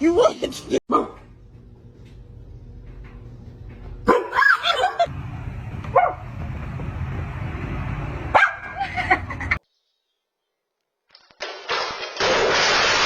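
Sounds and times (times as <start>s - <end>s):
steady low rumble: 1.2s - 4.1s, 5.0s - 9.6s
dog barking and yipping: 4.1s - 5.1s, 5.9s - 6.2s, 8.3s - 8.8s.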